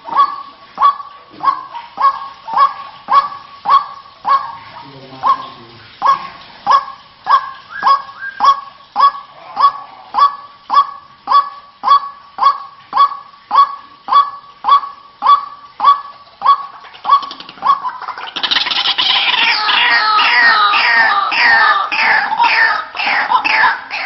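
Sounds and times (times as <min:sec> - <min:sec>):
waterhen calling nasal kwak notes: 0:00.0 - 0:24.0.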